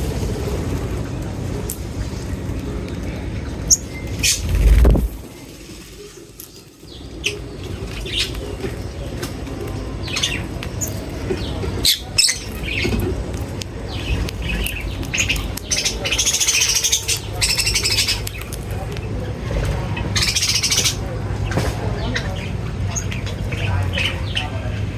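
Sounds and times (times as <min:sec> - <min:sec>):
small birds chirping: 0:06.1 - 0:24.9.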